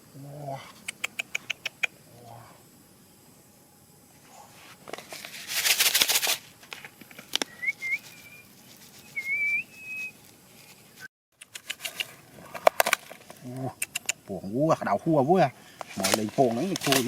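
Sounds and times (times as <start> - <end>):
rustling burst: 5.0 - 6.6
high whistled chirps: 7.4 - 10.2.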